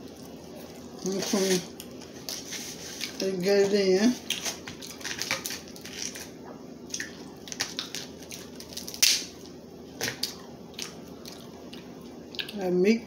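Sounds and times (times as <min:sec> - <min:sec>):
crab shells cracking: 0:04.2 - 0:12.6
person eating: 0:04.2 - 0:12.6.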